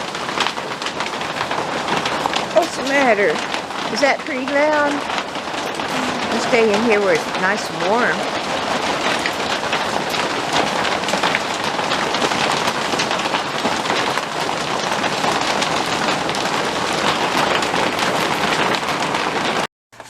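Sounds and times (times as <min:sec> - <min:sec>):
heavy rain: 0:00.0 - 0:19.7.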